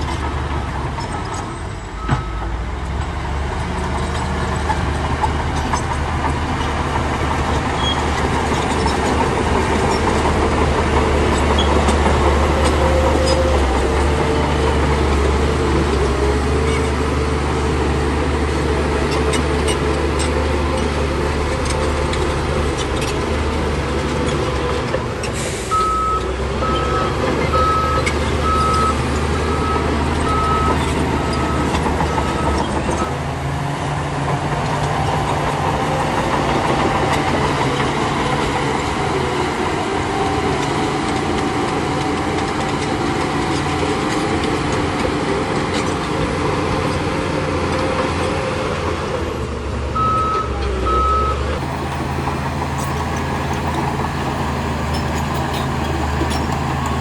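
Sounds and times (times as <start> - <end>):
heavy machinery diesel engines: 0.0 - 57.0
reversing alarm beeping: 25.7 - 33.1.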